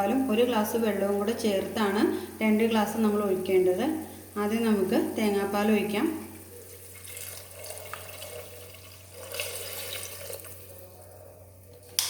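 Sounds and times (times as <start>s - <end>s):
liquid splashing pour: 6.6s - 10.9s.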